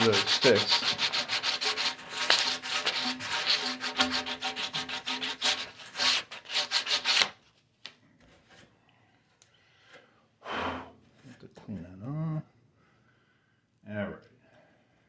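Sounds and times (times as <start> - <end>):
sanding plastic pipe: 0.0 - 7.4.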